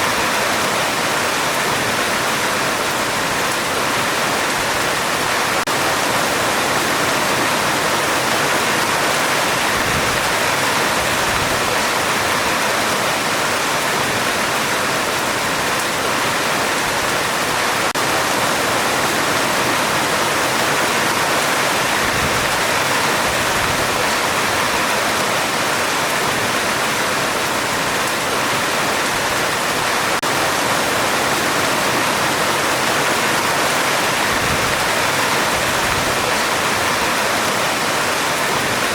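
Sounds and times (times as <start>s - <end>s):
heavy rain on a metal roof: 0.0s - 38.9s.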